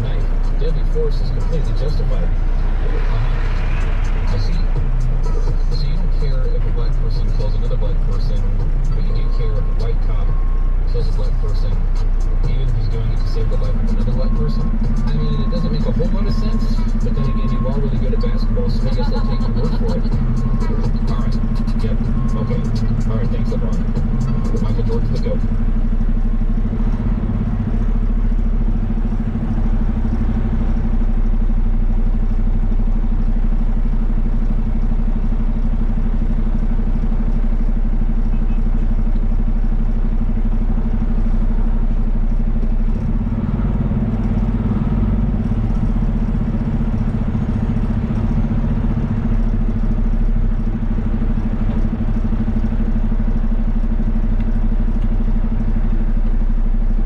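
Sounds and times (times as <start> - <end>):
diesel engine running steadily: 0.0 - 57.0.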